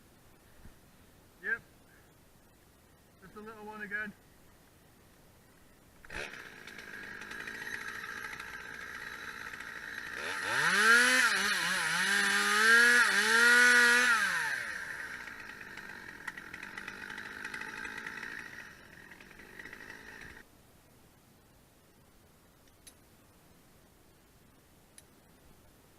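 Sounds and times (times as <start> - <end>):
chainsaw running and revving: 6.0 - 20.4.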